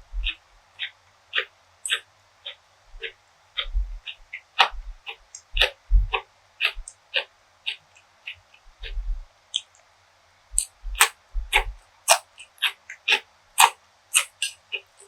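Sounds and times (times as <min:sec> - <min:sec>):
soft low thumps: 0:00.0 - 0:00.4, 0:02.9 - 0:06.9, 0:08.7 - 0:09.3, 0:10.5 - 0:11.8
chewing with crisp crunches: 0:00.1 - 0:09.0, 0:10.6 - 0:15.0.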